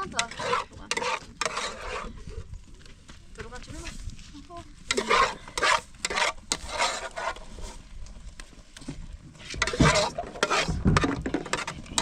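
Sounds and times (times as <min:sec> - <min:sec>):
short scraping strokes: 0:00.1 - 0:02.2, 0:04.9 - 0:07.8, 0:09.4 - 0:12.0.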